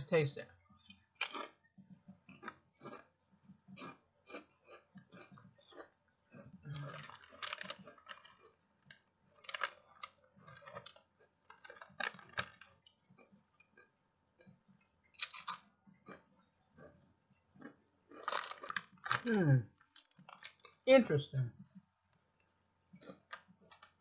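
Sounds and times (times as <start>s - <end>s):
person crunching potato chips: 1.2s - 1.6s, 2.3s - 3.1s, 3.7s - 13.9s, 15.2s - 16.2s, 17.6s - 20.8s.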